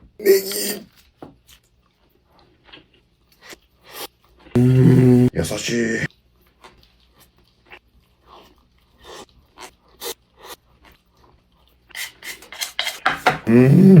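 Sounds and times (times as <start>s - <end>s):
chewing and mouth noises: 0.4s - 4.6s, 6.0s - 12.6s.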